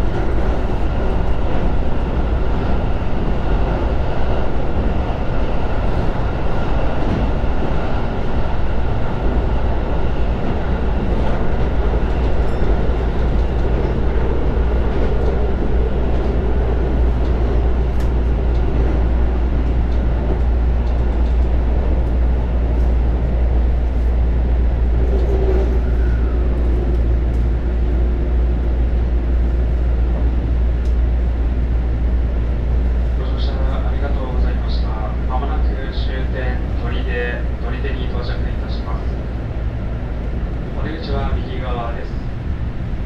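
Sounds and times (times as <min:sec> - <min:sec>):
faint train whine: 0:00.0 - 0:43.0
train wheels rumbling: 0:00.0 - 0:43.0.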